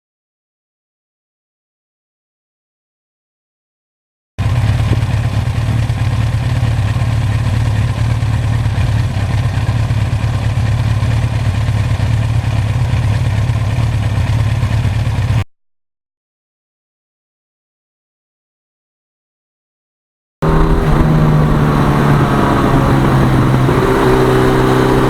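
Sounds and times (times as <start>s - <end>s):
motorcycle engine running: 4.4s - 15.4s, 20.4s - 25.0s
wind noise on microphone: 20.4s - 25.0s.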